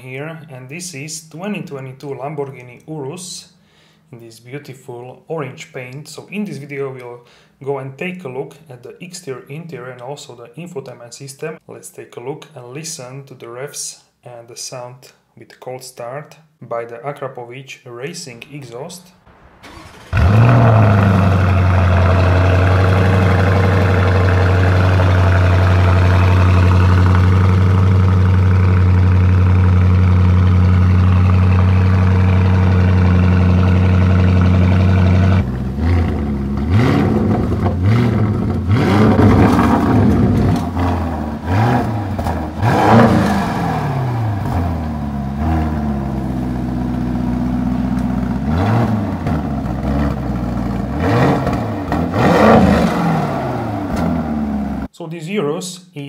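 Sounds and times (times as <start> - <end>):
car engine idling and revving: 19.4 - 54.9.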